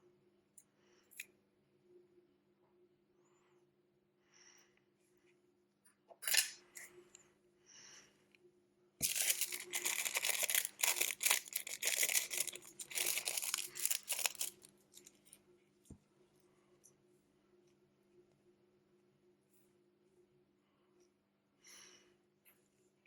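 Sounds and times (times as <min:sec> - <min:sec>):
faint steady hum: 0:00.0 - 0:23.0
tools scraping and crackling on phone: 0:09.0 - 0:15.4.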